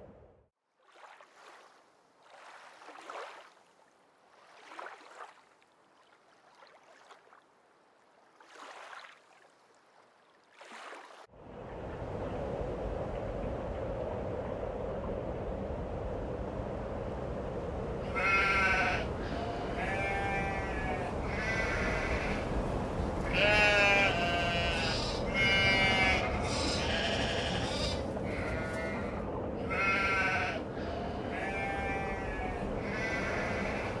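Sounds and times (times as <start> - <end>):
steady background hiss: 11.4 - 34.0
sheep bleating: 18.1 - 22.4, 23.2 - 34.0.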